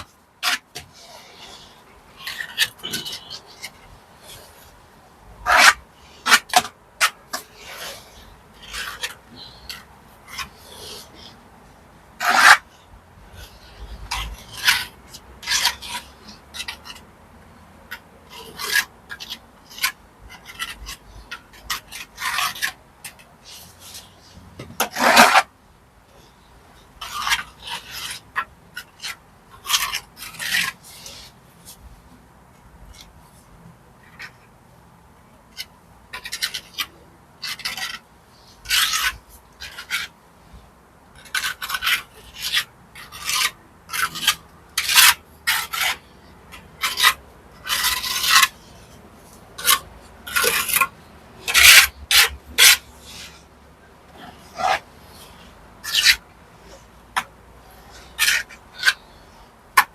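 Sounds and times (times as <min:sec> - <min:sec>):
trowel scraping wet mortar: 0:00.0 - 0:04.7, 0:05.4 - 0:11.3, 0:12.2 - 0:12.7, 0:13.4 - 0:17.0, 0:17.9 - 0:25.5, 0:27.0 - 0:31.3, 0:35.6 - 0:40.1, 0:41.2 - 0:53.4, 0:54.1 - 0:59.2.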